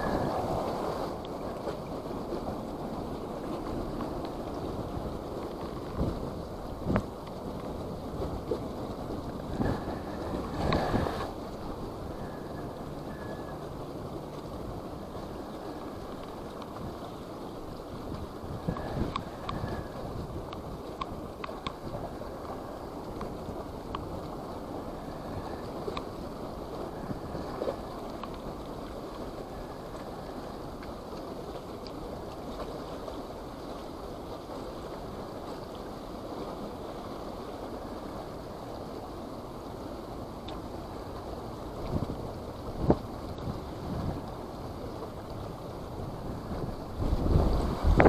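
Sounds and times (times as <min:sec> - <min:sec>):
wind rushing over microphone: 0:00.0 - 0:33.9, 0:37.5 - 0:48.0
faint clicks: 0:20.5 - 0:22.0, 0:23.0 - 0:24.4, 0:27.0 - 0:29.2, 0:40.4 - 0:40.6.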